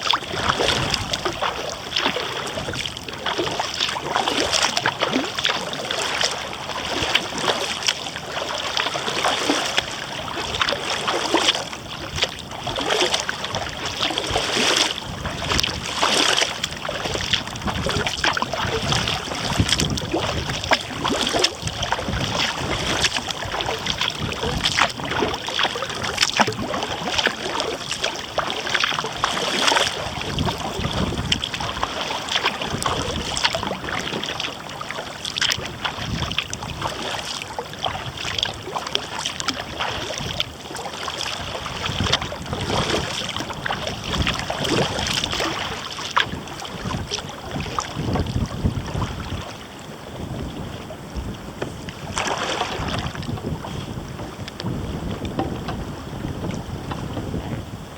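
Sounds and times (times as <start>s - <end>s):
paddle splashing: 0.0s - 57.9s
wind gusting on microphone: 0.3s - 5.3s, 10.2s - 28.2s, 29.0s - 34.2s, 35.5s - 37.3s, 39.4s - 57.9s.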